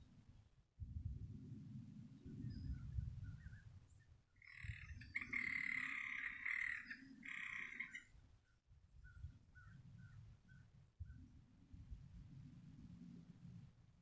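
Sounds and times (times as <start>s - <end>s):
frog trilling: 4.5s - 8.0s.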